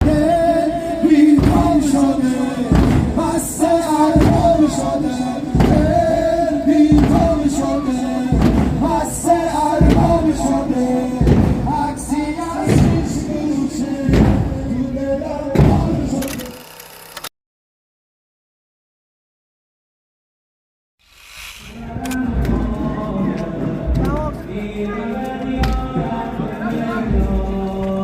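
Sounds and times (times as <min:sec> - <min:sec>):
slow drum beat: 0:00.0 - 0:14.8, 0:21.8 - 0:27.6
person singing a lament: 0:00.0 - 0:16.6, 0:21.8 - 0:28.0.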